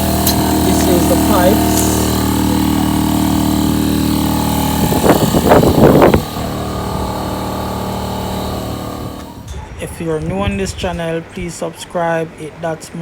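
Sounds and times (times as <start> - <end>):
vehicle engine running: 0.0 - 9.5
rough engine burst: 0.0 - 10.0.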